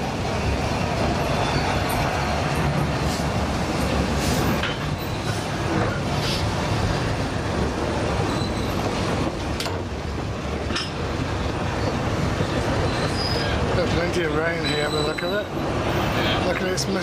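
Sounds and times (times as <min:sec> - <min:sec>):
train wheels rumbling on rail: 0:00.0 - 0:17.0
train wheel squeals: 0:00.4 - 0:02.3, 0:04.2 - 0:06.5, 0:08.2 - 0:09.0, 0:11.7 - 0:16.7.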